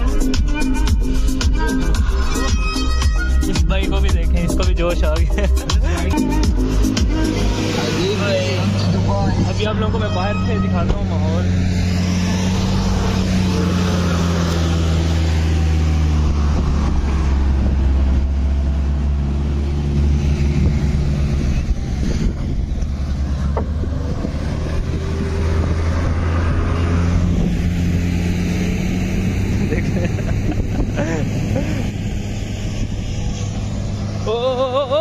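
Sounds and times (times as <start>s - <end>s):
suv engines running: 0.0s - 35.0s
wind buffeting microphone: 15.2s - 34.2s.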